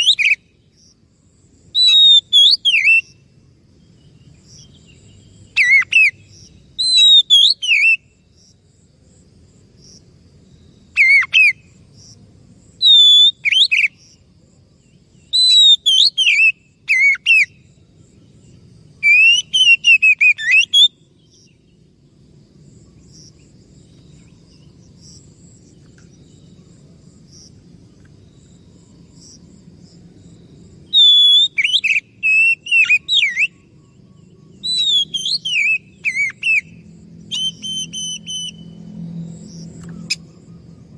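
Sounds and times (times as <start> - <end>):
bird singing whistled phrases: 0.0 - 0.4, 1.8 - 3.2, 5.5 - 6.2, 6.8 - 8.0, 12.8 - 14.0, 15.3 - 17.6, 19.0 - 21.4, 30.9 - 33.7, 34.5 - 38.8.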